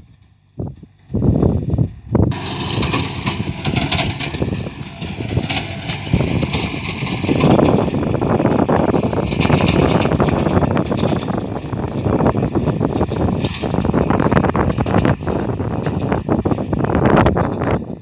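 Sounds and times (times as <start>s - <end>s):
combine harvester engine running: 0.0s - 18.0s.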